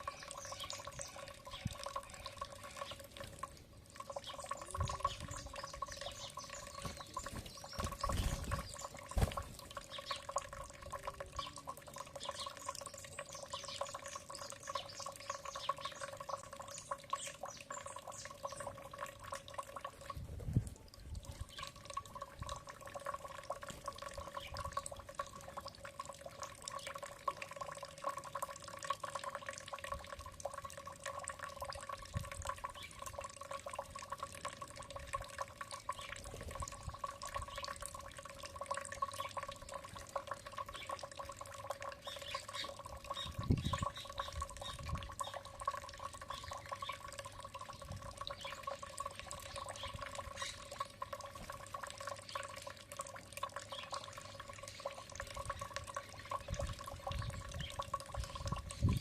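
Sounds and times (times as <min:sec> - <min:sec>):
faint bird chirps: 0:00.0 - 0:03.1, 0:04.0 - 0:09.2
dripping trickling water: 0:00.0 - 0:59.0.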